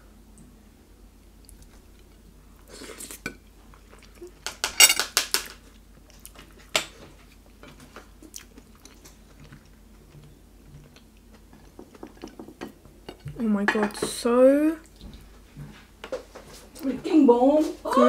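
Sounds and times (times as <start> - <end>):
chewing and lip smacks: 8.2 - 12.3.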